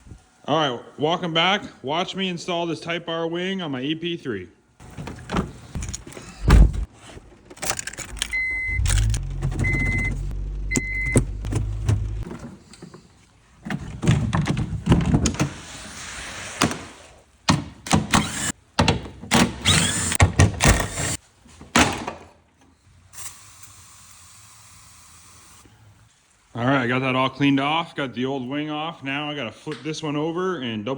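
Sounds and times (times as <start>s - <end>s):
low hum: 7.7s - 12.2s
short high beeps: 8.3s - 11.2s.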